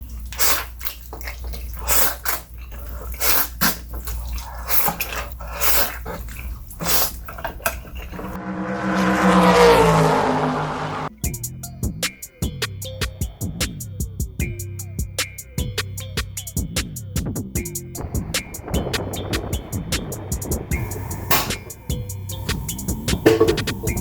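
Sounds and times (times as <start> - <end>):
slurping and chewing noodles: 0.0 - 8.4
low hum: 8.2 - 11.2, 17.4 - 24.0
whoosh with pitched hum: 8.4 - 11.2, 17.4 - 24.0.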